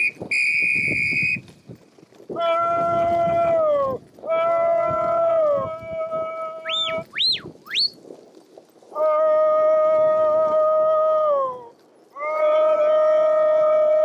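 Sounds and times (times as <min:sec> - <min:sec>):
swooping whistle-like notes: 0:00.0 - 0:01.4, 0:06.6 - 0:08.0
long howling calls: 0:02.4 - 0:07.9, 0:08.9 - 0:14.0.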